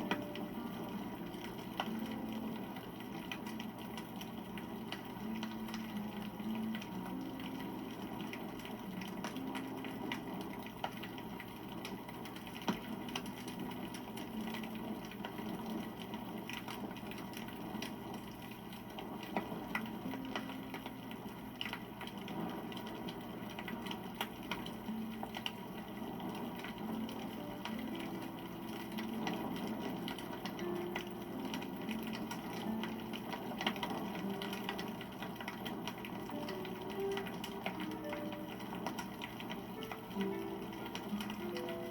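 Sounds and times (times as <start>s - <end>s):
campfire crackling and popping: 0.0s - 41.9s.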